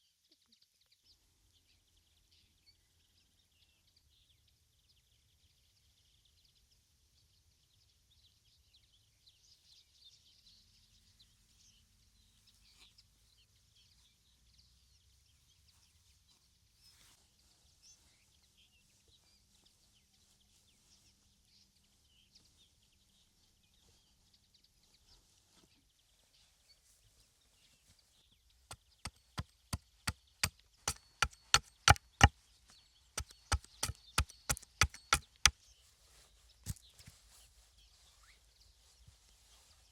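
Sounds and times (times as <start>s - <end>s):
sharp knocks on wood: 30.9s - 32.3s, 33.2s - 35.5s.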